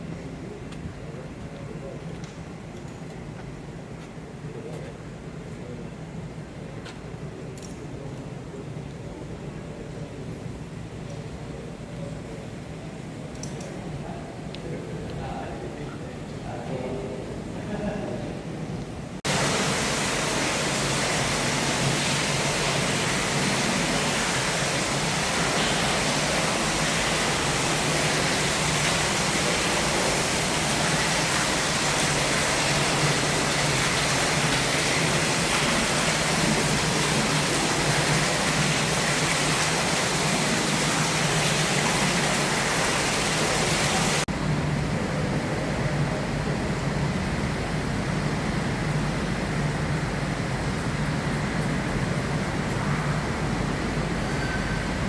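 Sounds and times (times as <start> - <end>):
rush of water and wind: 19.1 - 55.0.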